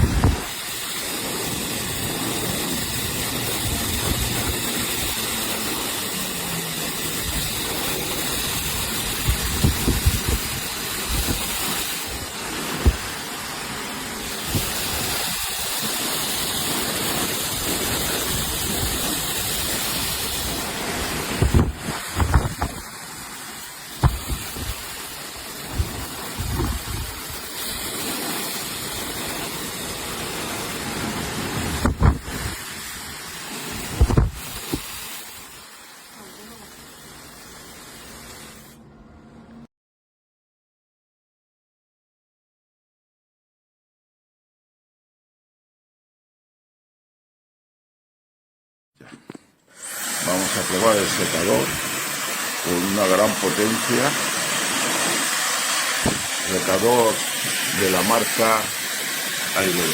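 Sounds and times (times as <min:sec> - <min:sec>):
air thumps on microphone: 0:00.0 - 0:00.6, 0:09.2 - 0:13.3, 0:20.5 - 0:22.9, 0:23.9 - 0:25.0, 0:25.7 - 0:27.4, 0:31.6 - 0:32.7, 0:33.7 - 0:35.2, 0:56.0 - 0:56.4
hair dryer running: 0:00.0 - 0:22.9, 0:49.8 - 0:59.9.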